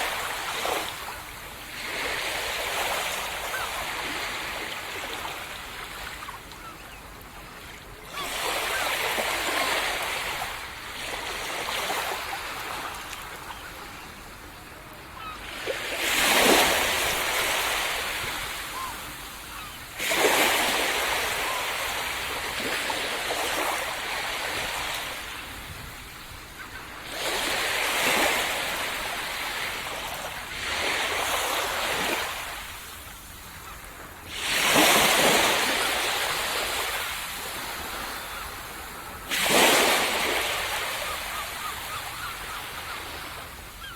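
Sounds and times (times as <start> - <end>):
waves breaking on sandy beach: 0.0 - 43.9.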